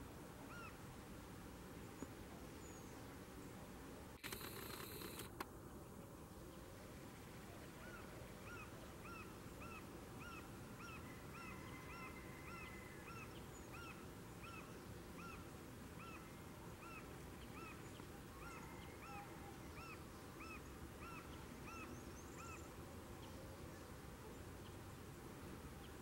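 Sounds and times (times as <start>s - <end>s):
low background hiss: 0.0s - 26.0s.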